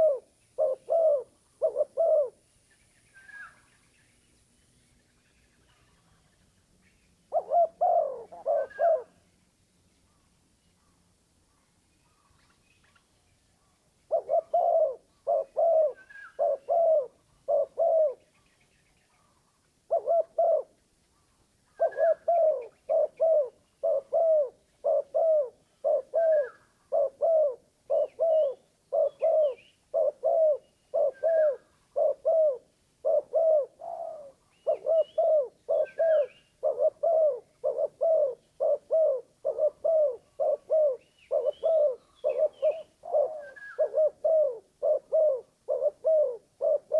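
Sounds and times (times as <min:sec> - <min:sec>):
dove cooing: 0:00.0 - 0:02.4, 0:07.3 - 0:09.2, 0:14.1 - 0:18.2, 0:19.9 - 0:20.8, 0:21.7 - 0:46.9
faint small bird chirps: 0:00.0 - 0:20.1, 0:33.2 - 0:44.2.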